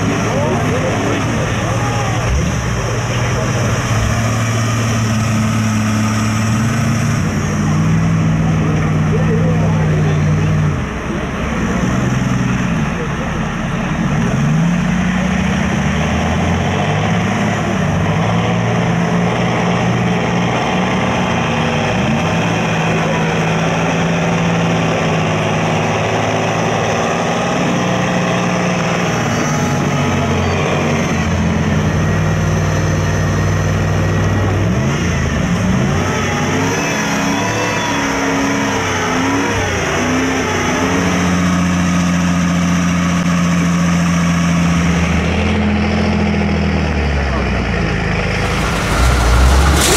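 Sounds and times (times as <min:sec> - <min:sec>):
voices: 0:00.0 - 0:04.1, 0:08.4 - 0:14.3
truck engine revving hard: 0:00.0 - 0:49.9.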